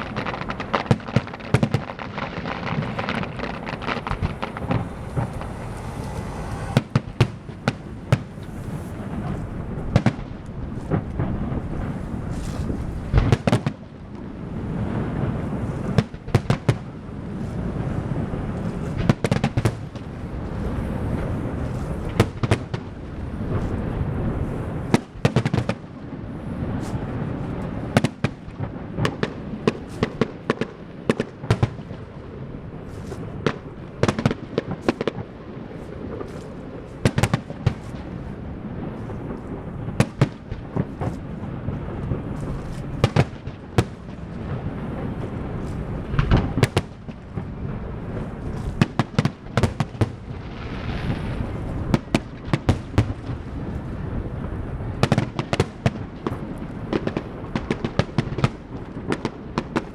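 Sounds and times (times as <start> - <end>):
fireworks bangs: 0.0 - 59.9
steady low rumble: 2.0 - 16.3, 32.1 - 49.5.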